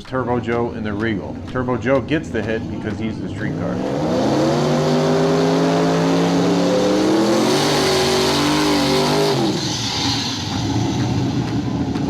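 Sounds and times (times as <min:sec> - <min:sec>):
drag racing cars accelerating: 0:00.0 - 0:12.0.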